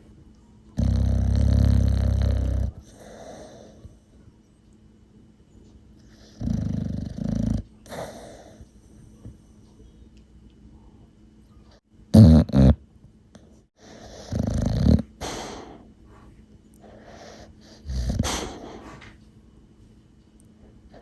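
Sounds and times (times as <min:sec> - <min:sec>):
dog double snort: 0:00.8 - 0:03.6, 0:12.2 - 0:12.8, 0:13.8 - 0:15.8, 0:17.1 - 0:19.1
dog snoring: 0:00.8 - 0:03.8, 0:06.1 - 0:08.7, 0:12.1 - 0:12.8, 0:13.8 - 0:15.8, 0:16.9 - 0:19.0.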